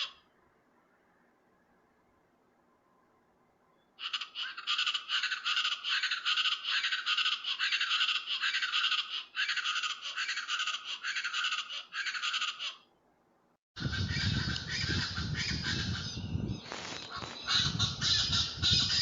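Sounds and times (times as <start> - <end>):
bird giving raspy calls: 0.0 - 0.3, 4.0 - 12.9, 13.8 - 19.0.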